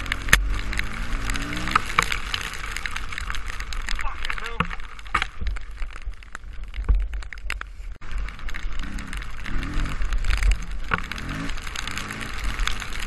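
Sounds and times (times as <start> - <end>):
dirt bike engine revving: 0.0 - 2.2, 8.7 - 13.0.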